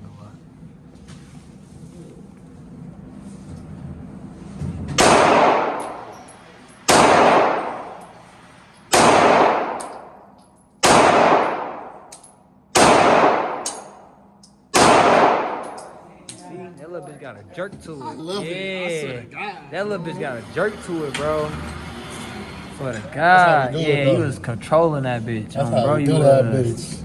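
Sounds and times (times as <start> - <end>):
pistol shots with echo: 5.0 - 6.2, 6.9 - 8.0, 8.9 - 10.2, 10.8 - 14.1, 14.7 - 16.0.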